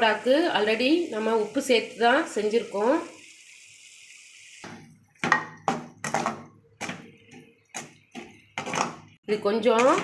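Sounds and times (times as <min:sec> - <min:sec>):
faint sizzle: 0:00.0 - 0:05.2.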